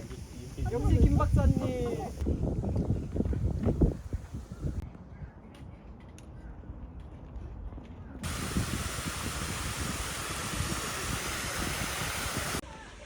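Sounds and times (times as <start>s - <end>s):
loud steady hiss: 0.0s - 2.3s, 8.2s - 13.0s.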